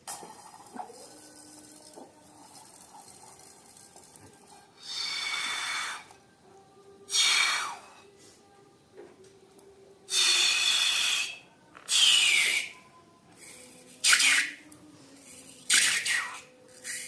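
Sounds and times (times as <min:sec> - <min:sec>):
air hissing from balloon neck: 0:01.4 - 0:06.2, 0:07.1 - 0:08.1, 0:10.1 - 0:12.8, 0:13.4 - 0:17.0.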